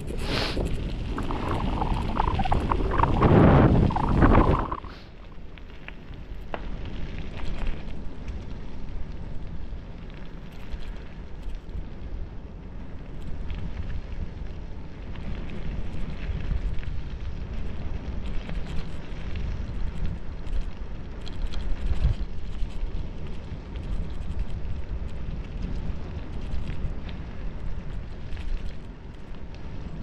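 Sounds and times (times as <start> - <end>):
wind buffeting microphone: 0.0 - 5.6, 6.2 - 30.0
bicycle tyres rumbling: 0.0 - 30.0
small clicks and rattles: 3.9 - 8.8, 10.0 - 11.9, 15.1 - 30.0.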